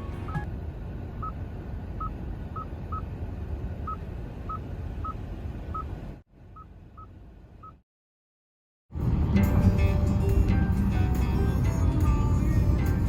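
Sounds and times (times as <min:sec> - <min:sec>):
steady low rumble: 0:09.0 - 0:13.0.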